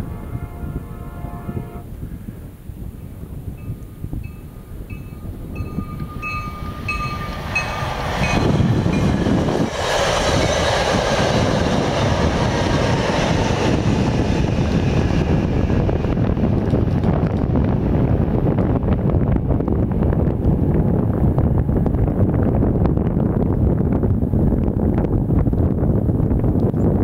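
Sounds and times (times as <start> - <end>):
train passing rumble: 0.0 - 26.8
high ringing ding: 3.6 - 7.8.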